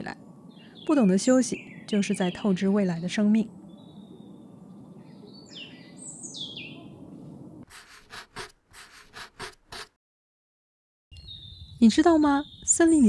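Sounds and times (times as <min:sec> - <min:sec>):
low outdoor hum: 0:00.0 - 0:08.2
bird chirping: 0:00.3 - 0:07.6, 0:11.1 - 0:13.0.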